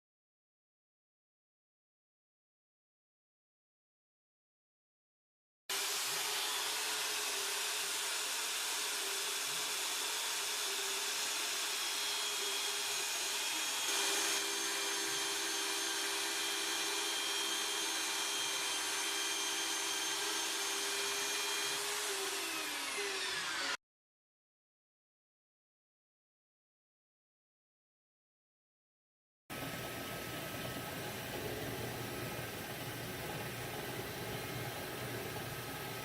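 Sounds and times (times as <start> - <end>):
bandsaw motor whine: 5.7 - 23.8.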